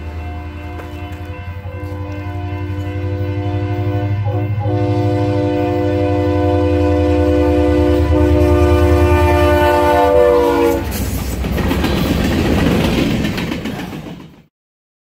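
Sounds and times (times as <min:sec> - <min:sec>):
train wheels rattling over rails: 0:00.0 - 0:03.9, 0:07.9 - 0:14.5
train air horn: 0:00.0 - 0:11.1.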